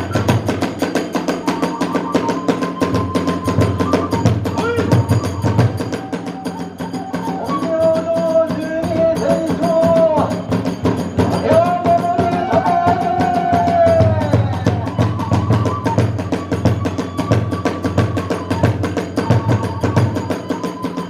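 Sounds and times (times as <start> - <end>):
bamboo flute held notes: 0.0 - 10.5, 11.2 - 21.0
taiko drums beating: 0.0 - 21.0.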